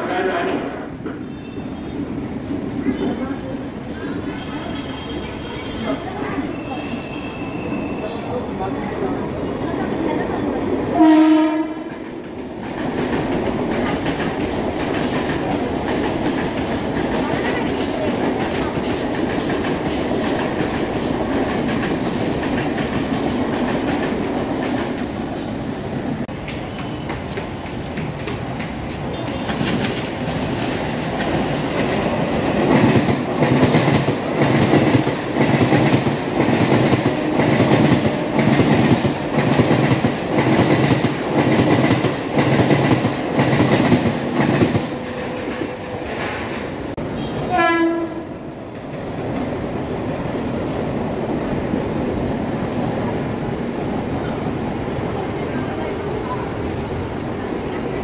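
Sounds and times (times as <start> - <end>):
train rumbling past: 0.0 - 58.0
train horn blast: 11.0 - 12.0, 47.1 - 48.5.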